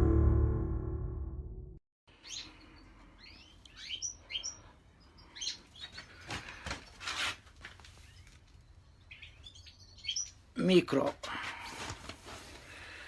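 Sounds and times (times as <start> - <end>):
finches chirping: 2.2 - 6.2, 8.8 - 10.5.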